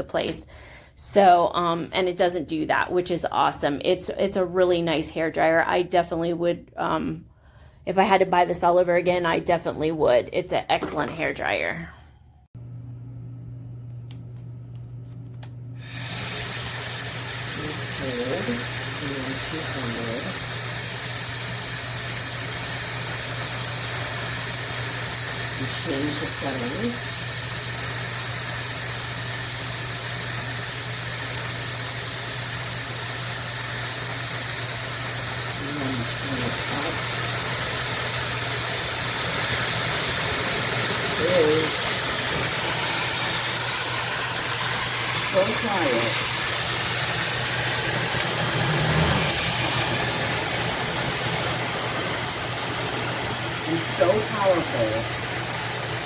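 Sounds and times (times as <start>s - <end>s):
hair dryer running: 15.4s - 56.0s.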